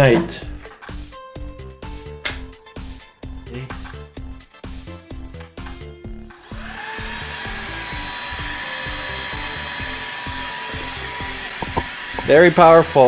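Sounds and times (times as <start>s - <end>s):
background music: 0.0s - 13.0s
vacuum cleaner motor whirring: 6.4s - 13.0s.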